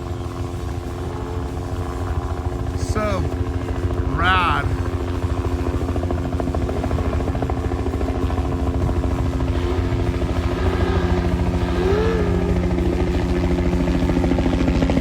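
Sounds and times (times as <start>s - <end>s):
engine running with fast pulsing: 0.0s - 15.0s.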